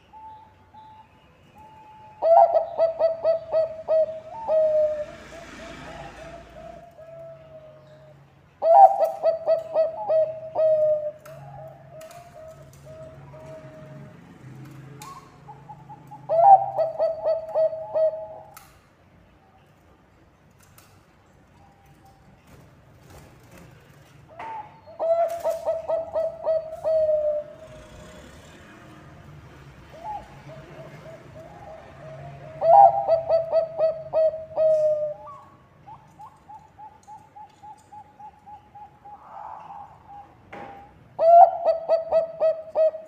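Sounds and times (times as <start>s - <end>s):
dove cooing: 2.0s - 14.1s, 15.1s - 18.6s, 24.3s - 28.2s, 29.9s - 43.0s.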